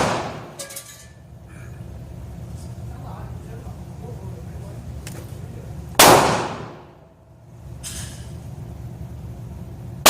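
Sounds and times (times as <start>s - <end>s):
revolver gunshot: 0.0s - 0.6s, 6.0s - 7.0s.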